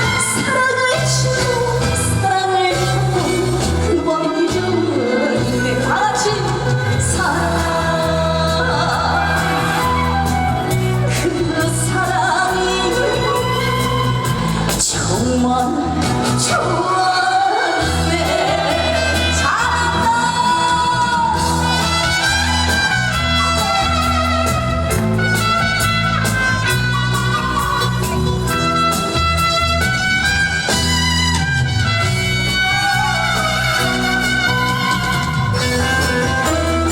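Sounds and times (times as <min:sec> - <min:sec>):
woman singing: 0:00.0 - 0:24.8, 0:32.6 - 0:36.9.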